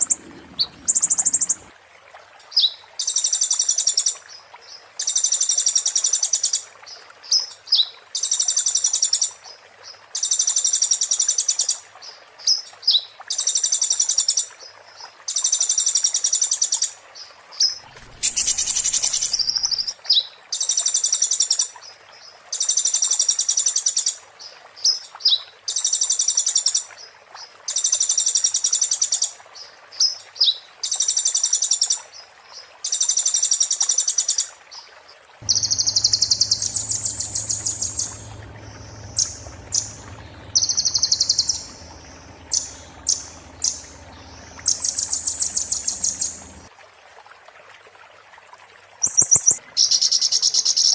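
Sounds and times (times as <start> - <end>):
bird sharp chips: 17.8 - 19.9
songbird high trill: 18.0 - 19.9, 35.4 - 46.7.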